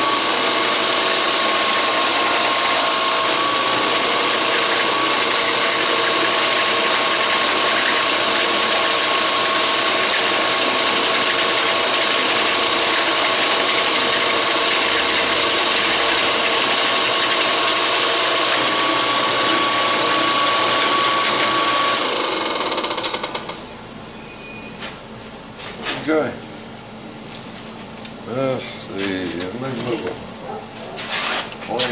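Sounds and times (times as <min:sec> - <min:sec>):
drill press whining: 0:00.0 - 0:24.5.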